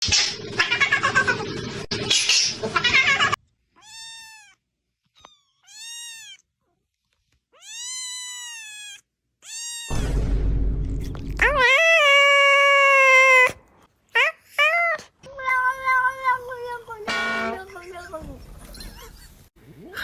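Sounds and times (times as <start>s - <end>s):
cat meowing: 2.8s - 4.6s, 5.2s - 6.5s, 7.5s - 10.0s.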